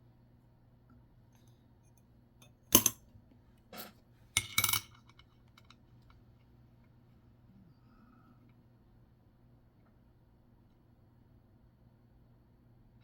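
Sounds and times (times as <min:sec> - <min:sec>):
coins clicking and clinking: 0:02.8 - 0:03.0, 0:04.4 - 0:05.0.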